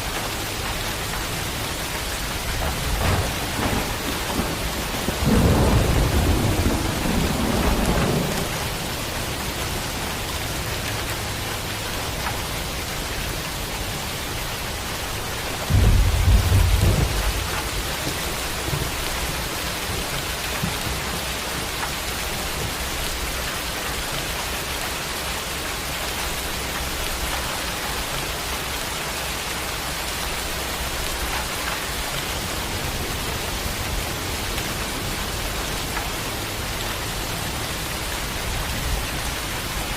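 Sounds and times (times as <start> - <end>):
steady rain hiss: 0.0 - 39.9
thunder rumbling: 1.9 - 10.2, 14.8 - 23.4.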